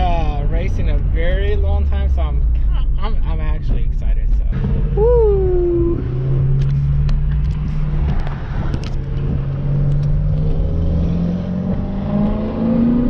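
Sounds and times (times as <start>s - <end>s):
car engine accelerating: 4.4s - 13.0s.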